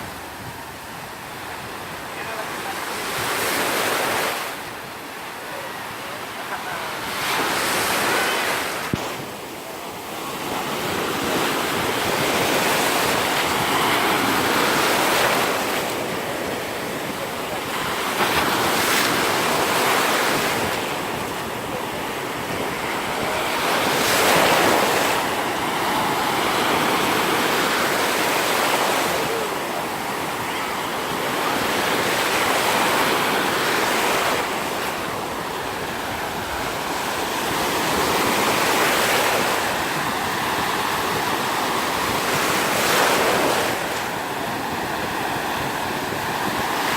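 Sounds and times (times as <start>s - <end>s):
surf breaking on sandy beach: 0.0s - 46.9s
wind on microphone: 10.4s - 46.9s.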